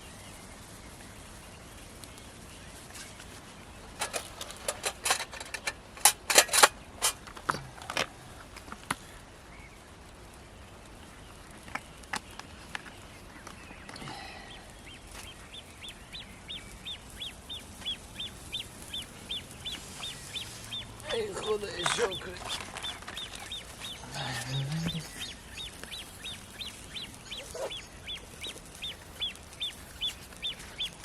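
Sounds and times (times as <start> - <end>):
sharp clicks and knocks: 4.0 - 9.0
bird chirping: 10.6 - 31.0.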